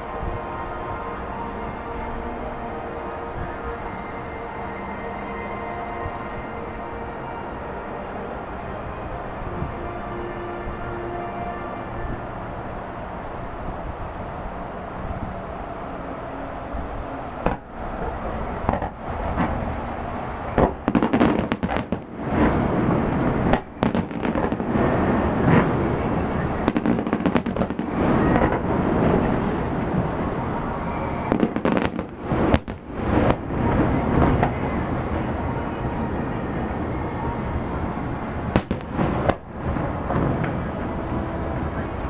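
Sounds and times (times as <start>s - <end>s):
continuous rumble: 0.0s - 42.0s
fireworks booming: 17.4s - 19.8s, 20.5s - 36.7s, 38.4s - 42.0s.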